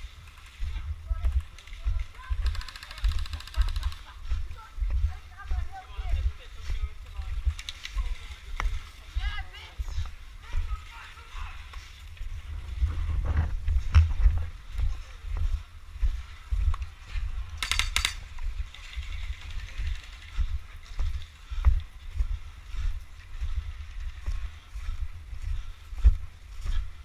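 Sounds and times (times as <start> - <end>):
airsoft gun rapid burst: 2.4 - 4.0
low rumble: 11.6 - 17.6.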